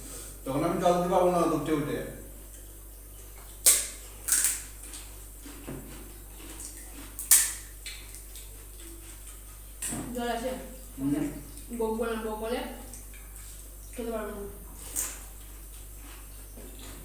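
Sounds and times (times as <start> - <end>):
crisp shells cracking: 3.6 - 5.1, 6.6 - 8.3.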